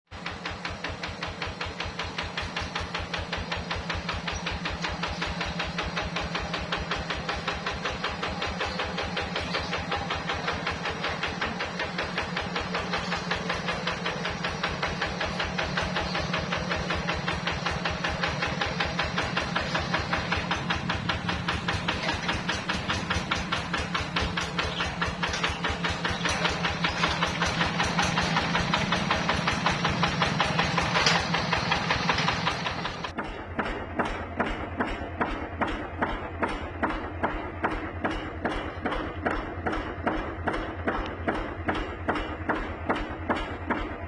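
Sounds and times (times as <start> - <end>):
diesel engine thumping: 0.1 - 44.0.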